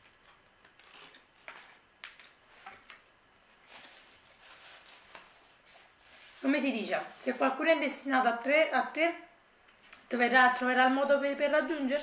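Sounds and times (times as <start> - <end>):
chewing pizza crust: 0.0 - 3.1.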